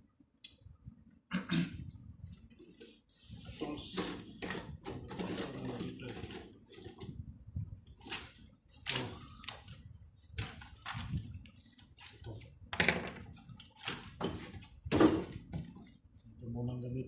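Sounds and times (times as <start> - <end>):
small tools clicking and clattering: 3.9 - 7.1, 8.0 - 12.4.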